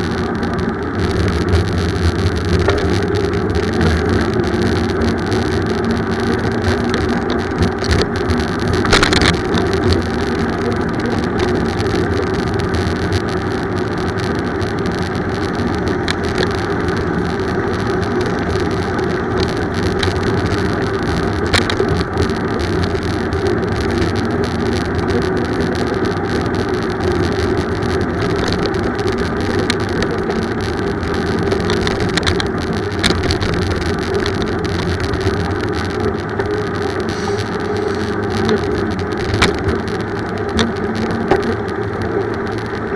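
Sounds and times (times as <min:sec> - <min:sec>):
bicycle tyre noise on road: 0:00.0 - 0:42.9
wind noise: 0:00.0 - 0:42.9
sharp clicks and knocks: 0:01.0 - 0:42.9.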